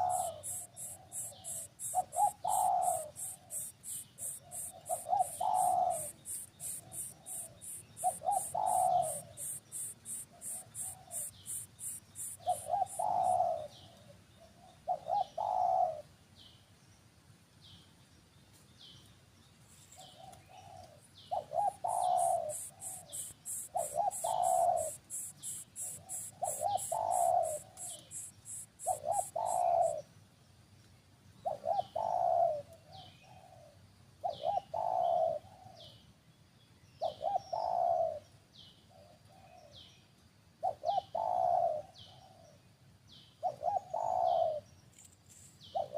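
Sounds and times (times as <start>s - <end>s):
bird cooing: 0.0s - 16.1s, 20.0s - 30.1s, 31.4s - 36.0s, 37.0s - 38.3s, 38.9s - 39.8s, 40.6s - 42.6s, 43.4s - 44.7s.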